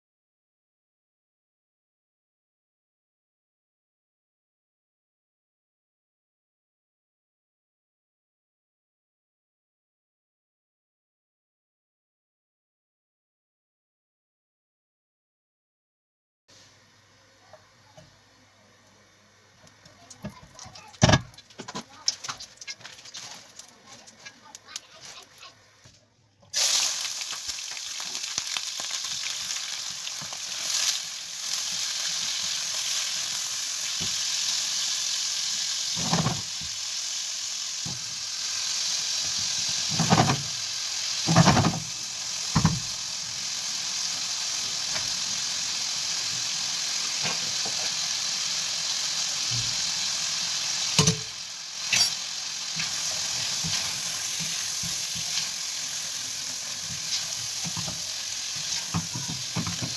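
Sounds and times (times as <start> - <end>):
meat sizzling in hot oil: 19.6 - 25.5, 26.5 - 59.9.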